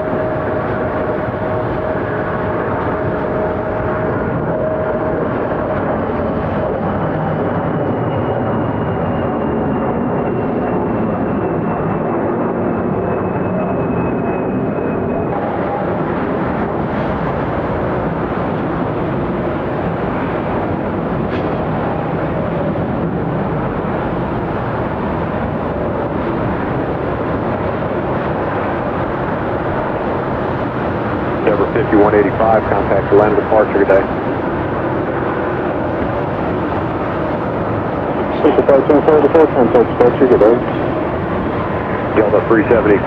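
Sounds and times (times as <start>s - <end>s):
jet engine noise: 0.0s - 43.0s
faint high whine: 31.1s - 34.6s, 36.5s - 43.0s.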